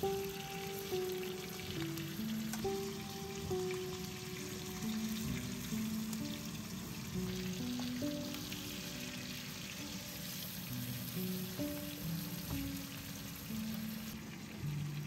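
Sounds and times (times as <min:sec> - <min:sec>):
food sizzling in hot oil: 0:00.0 - 0:15.0
slow melody of held notes: 0:00.0 - 0:15.0.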